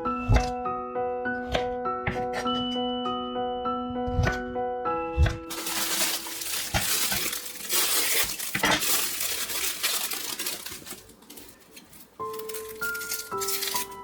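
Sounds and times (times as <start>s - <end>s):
background music: 0.0s - 11.4s, 12.0s - 14.0s
kitchenware clinking: 5.5s - 14.0s.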